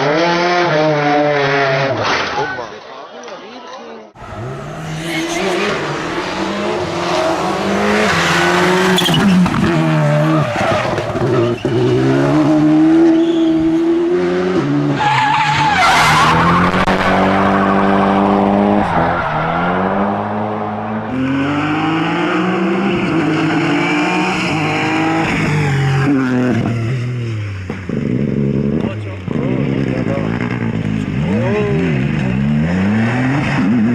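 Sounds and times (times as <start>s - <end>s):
rally car engine revving: 0.0s - 2.1s, 4.2s - 33.9s
tyre noise: 4.2s - 14.0s.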